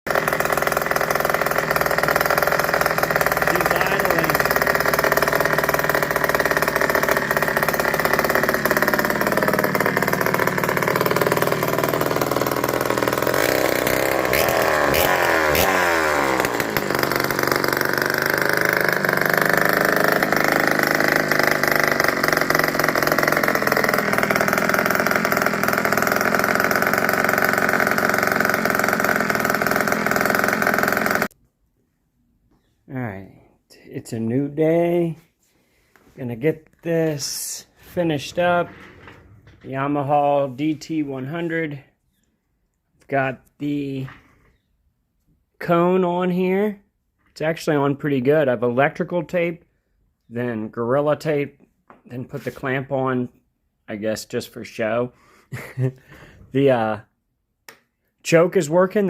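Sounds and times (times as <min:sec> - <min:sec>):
two-stroke motorcycle engine revving: 0:00.1 - 0:31.4.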